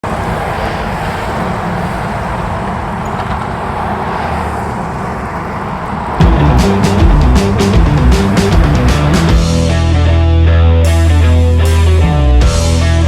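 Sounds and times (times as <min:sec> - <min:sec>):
loud rock music: 0:06.2 - 0:13.0.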